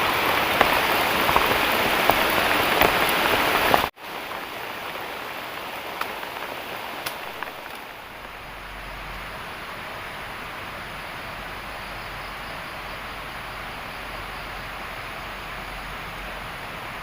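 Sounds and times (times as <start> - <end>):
water drips: 0.0 - 10.3
heavy rain pouring: 0.0 - 17.0.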